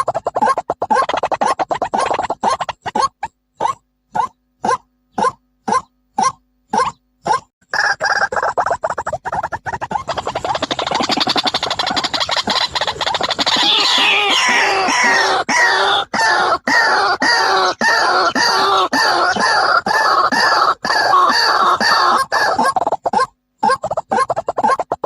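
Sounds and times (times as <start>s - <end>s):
waterhen calling: 7.7s - 24.9s.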